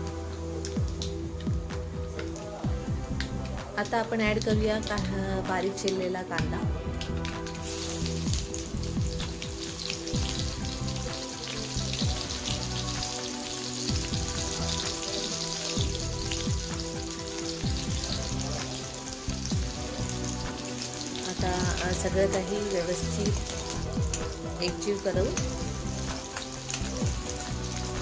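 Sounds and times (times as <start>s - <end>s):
background music: 0.0s - 28.0s
onion sizzling in hot oil: 0.0s - 28.0s.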